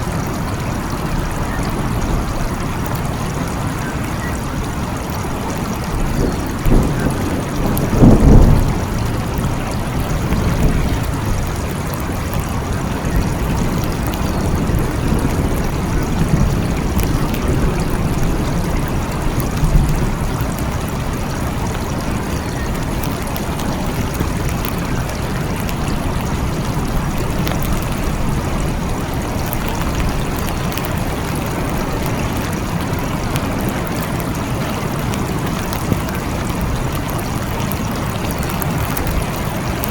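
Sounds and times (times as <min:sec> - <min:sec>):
steady rain: 0:00.0 - 0:39.9
rolling thunder: 0:05.8 - 0:33.8.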